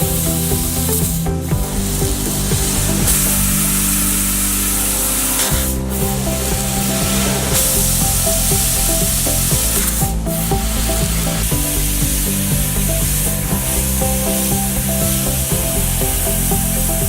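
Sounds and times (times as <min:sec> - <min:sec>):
laser cutting machine hiss: 0:00.0 - 0:17.0.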